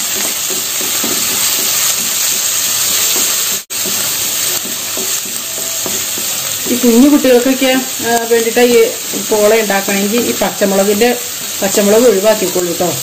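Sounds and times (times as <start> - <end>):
wooden spatula scraping pan: 0.0 - 8.0
vegetables sizzling in oil: 0.0 - 13.0.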